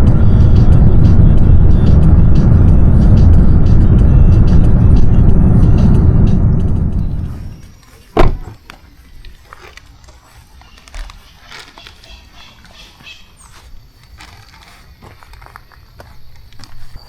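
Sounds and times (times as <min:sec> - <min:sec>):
vehicle rumble: 0:00.0 - 0:17.0
sharp thump: 0:08.2 - 0:08.6.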